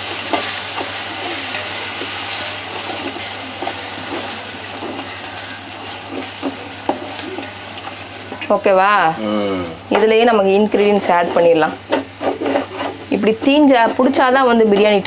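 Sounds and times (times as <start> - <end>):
vegetables sizzling in oil: 0.0 - 15.0
spoon scraping and tapping pot: 10.8 - 15.0.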